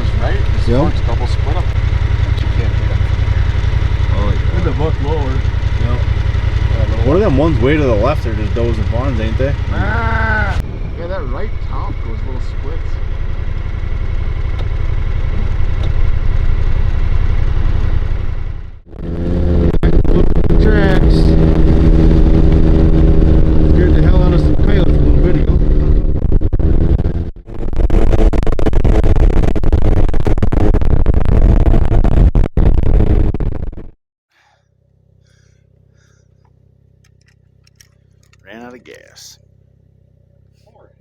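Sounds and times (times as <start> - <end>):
vehicle engine rumbling: 0.0 - 41.0
wind buffeting microphone: 10.4 - 12.8.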